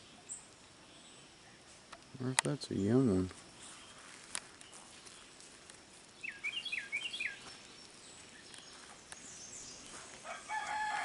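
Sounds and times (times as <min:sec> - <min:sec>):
bird chirping: 0:00.0 - 0:01.7, 0:02.4 - 0:05.5, 0:06.1 - 0:11.0
rooster crowing: 0:10.2 - 0:11.0.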